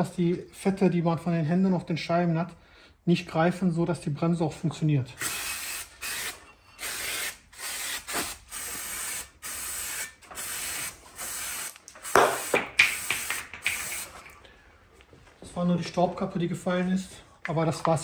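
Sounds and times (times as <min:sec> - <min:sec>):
aerosol spray hissing bursts: 0:05.3 - 0:14.2.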